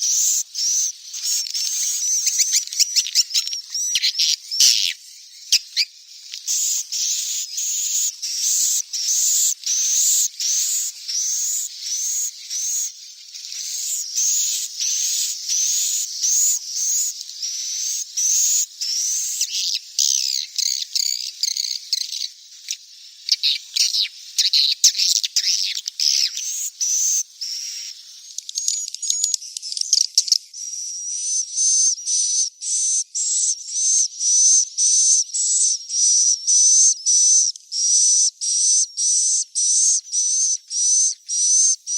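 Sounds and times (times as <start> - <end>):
bird chicks chirping: 0.0 - 30.4, 39.6 - 41.9.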